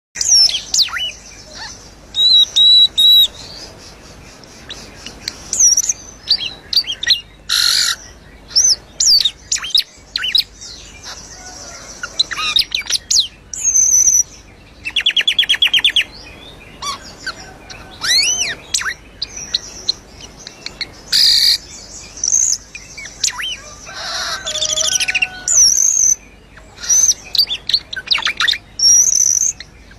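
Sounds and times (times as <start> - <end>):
songbird singing whistled phrases: 0.2 - 3.7, 11.4 - 16.2, 16.8 - 23.7, 24.4 - 29.9
rapid rattling bird trill: 0.2 - 16.2, 16.8 - 29.9
harsh chattering bird notes: 16.8 - 29.7.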